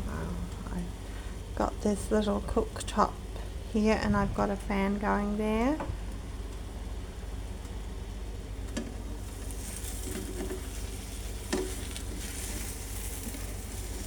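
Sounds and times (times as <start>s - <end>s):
fan hum: 0.0s - 14.0s
omelette sizzling in a pan: 9.0s - 14.0s.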